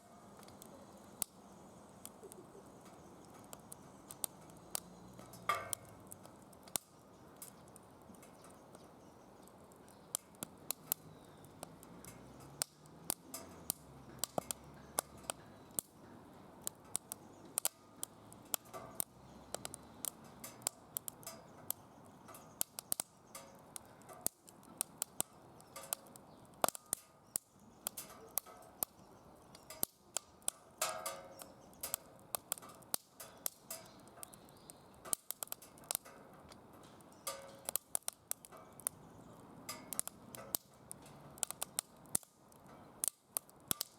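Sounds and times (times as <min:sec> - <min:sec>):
wood fire crackling and popping: 0:00.0 - 0:43.9.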